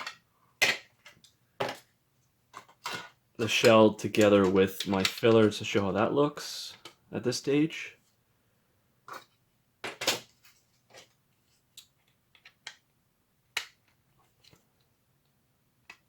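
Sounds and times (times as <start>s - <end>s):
plastic parts clicking and tapping: 0.0s - 1.9s, 2.5s - 5.6s, 6.7s - 7.0s, 10.9s - 12.9s, 15.8s - 16.0s.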